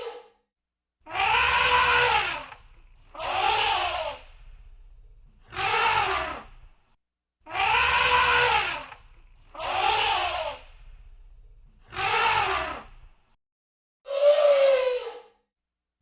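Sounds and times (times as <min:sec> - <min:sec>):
elephant trumpeting: 0:01.1 - 0:06.7, 0:07.5 - 0:11.1, 0:11.9 - 0:13.1.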